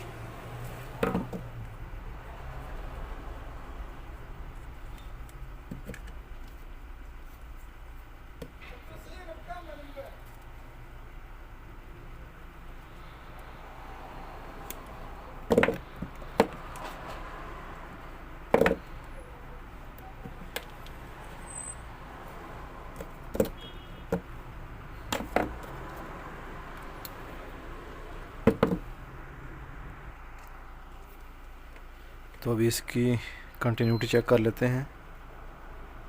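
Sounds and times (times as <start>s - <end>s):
low background noise: 0.0s - 36.0s.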